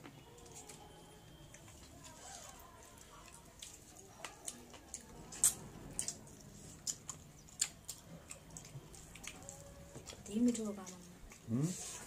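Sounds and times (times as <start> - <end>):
wet chewing mouth clicks: 3.6 - 11.6.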